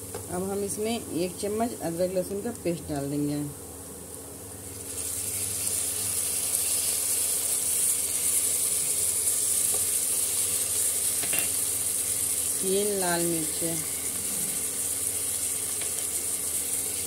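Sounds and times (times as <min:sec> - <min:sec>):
onions sizzling in hot oil: 0:04.0 - 0:17.0.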